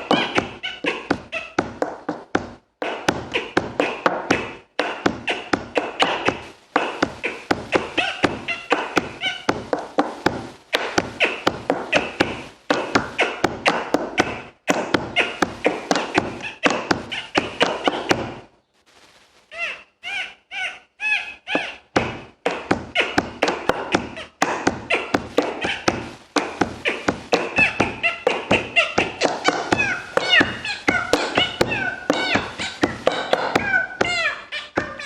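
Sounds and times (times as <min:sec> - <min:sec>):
beatboxing: 0:00.0 - 0:18.5, 0:21.3 - 0:35.0
high vocal calls: 0:22.9 - 0:35.0.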